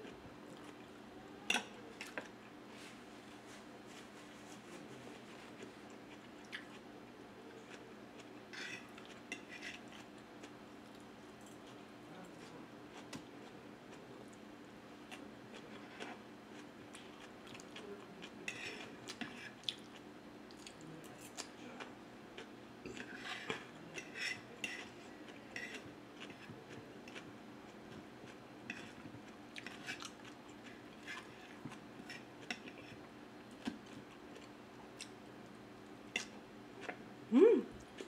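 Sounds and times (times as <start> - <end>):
faint steady hum: 0.0 - 38.0
person chewing: 5.9 - 6.8, 15.1 - 21.5, 27.9 - 33.0.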